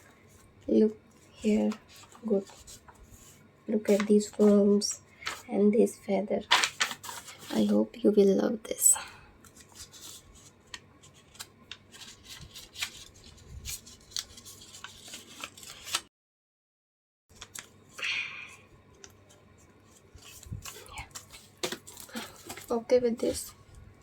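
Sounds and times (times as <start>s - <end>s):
paper rustling: 1.2s - 5.5s, 6.5s - 7.8s, 9.4s - 16.1s, 17.3s - 17.8s, 19.0s - 23.5s.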